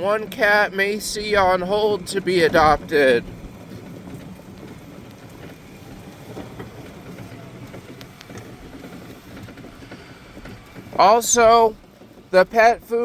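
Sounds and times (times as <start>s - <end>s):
low background rumble: 0.0s - 13.0s
faint clicks: 3.2s - 11.0s.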